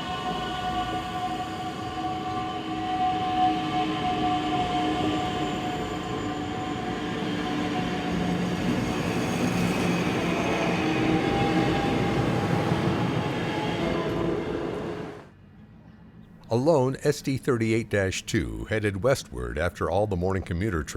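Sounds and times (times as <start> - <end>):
train whining tones: 0.0 - 15.4
train rail and wheel noise: 0.0 - 16.2.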